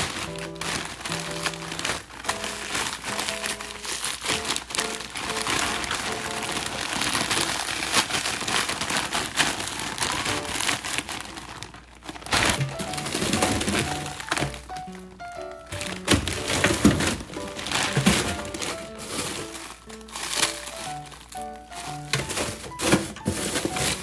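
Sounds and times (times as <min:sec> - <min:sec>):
background music: 0:00.0 - 0:06.9, 0:12.4 - 0:24.0
plastic packaging crinkling: 0:00.0 - 0:24.0.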